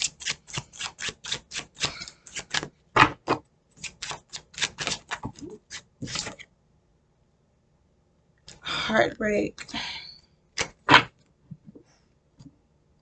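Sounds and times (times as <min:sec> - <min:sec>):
cards being shuffled: 0:00.0 - 0:06.5.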